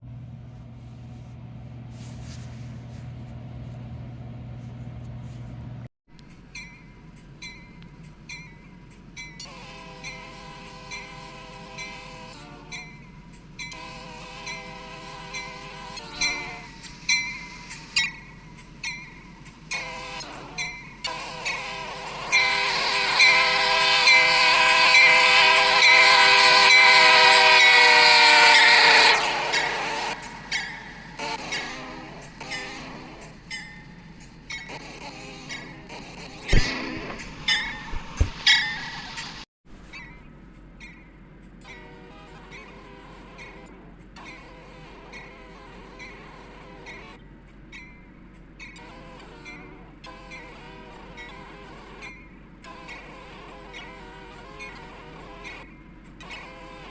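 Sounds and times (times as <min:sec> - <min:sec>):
locomotive air horn chord: 0:09.4 - 0:18.5, 0:19.7 - 0:39.4, 0:41.6 - 0:47.2
diesel engine humming: 0:35.4 - 0:39.5.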